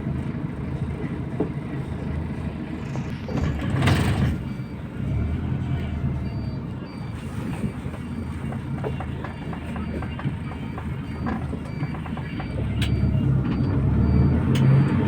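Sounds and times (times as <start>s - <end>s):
bus diesel engine running: 0.0s - 15.0s
body rattles and knocks: 7.5s - 12.8s.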